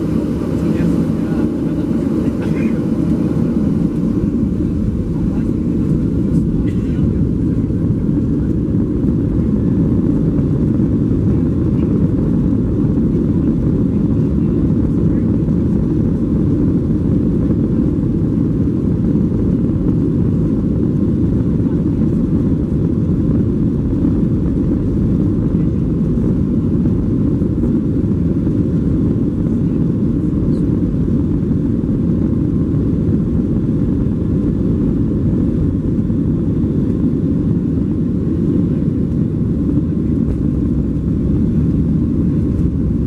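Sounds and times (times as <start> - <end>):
airflow noise: 0.0 - 13.1, 34.0 - 43.0
jet engines rumbling: 0.0 - 43.0.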